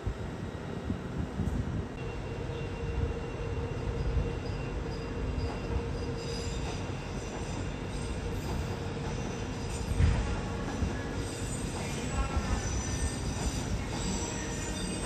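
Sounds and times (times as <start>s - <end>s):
train running: 0.0s - 15.0s
wheel squeal: 4.0s - 10.5s, 11.1s - 15.0s.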